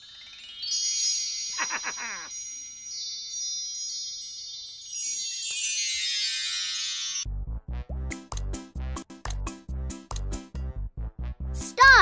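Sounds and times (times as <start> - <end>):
high ringing chime tones: 0.0 - 7.2.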